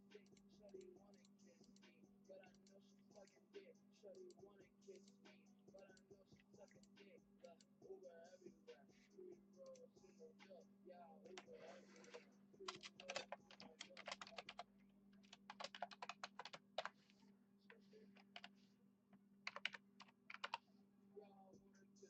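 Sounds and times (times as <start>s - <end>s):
faint steady hum: 0.0s - 22.0s
typing on keyboard: 11.4s - 17.0s, 18.1s - 18.6s, 19.4s - 20.6s.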